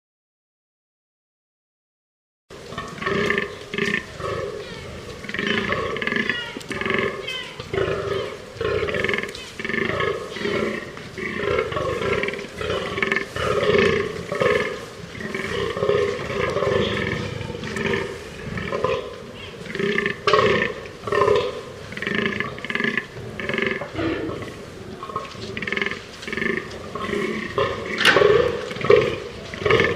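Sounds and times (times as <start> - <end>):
deer groaning: 25.5 - 29.9.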